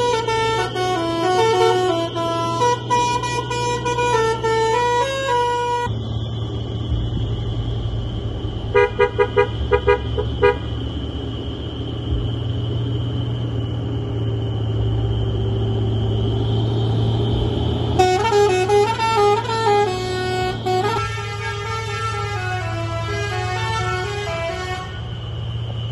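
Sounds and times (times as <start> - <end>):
short horn toots: 0.0 - 5.9
truck musical horn playing tune: 0.0 - 6.0, 8.7 - 10.8, 17.9 - 25.3
engine drone: 0.0 - 25.9.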